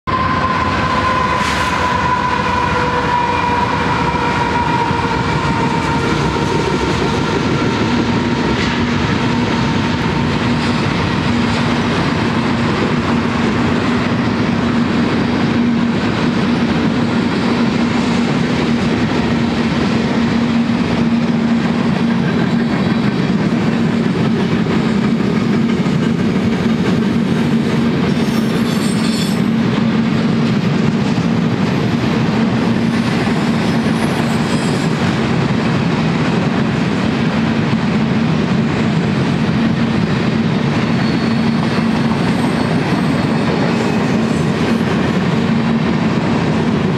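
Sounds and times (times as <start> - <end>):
freight train rumbling past: 0.0 - 46.9.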